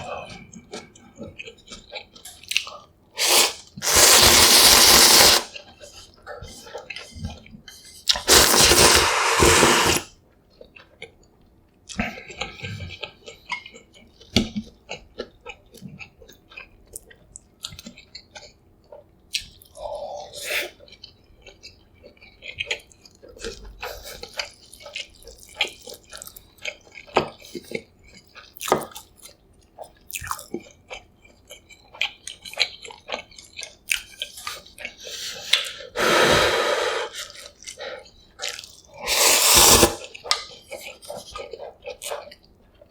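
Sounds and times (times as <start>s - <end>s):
slurping noodles: 3.2s - 5.5s, 8.1s - 10.1s, 35.3s - 37.4s, 38.9s - 40.3s
wet chewing: 37.2s - 42.9s.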